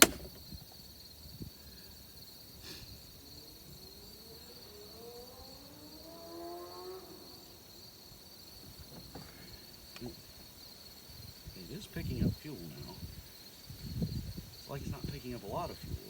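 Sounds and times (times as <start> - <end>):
insects chirring: 0.0 - 16.0
faint motor rising in pitch: 4.0 - 7.5.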